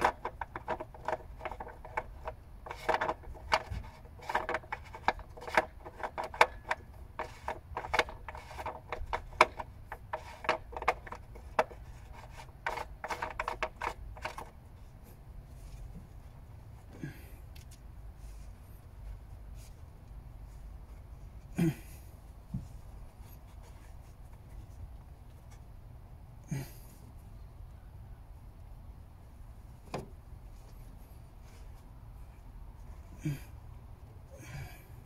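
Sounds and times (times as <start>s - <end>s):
clicks and taps of car parts: 0.0s - 14.5s.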